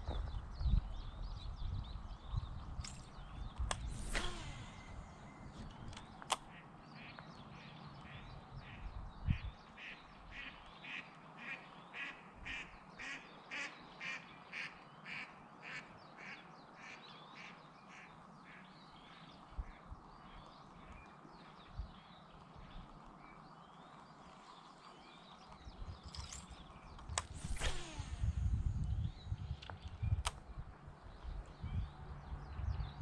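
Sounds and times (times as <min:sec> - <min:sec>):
sharp click: 0:02.8 - 0:06.5, 0:26.0 - 0:30.5.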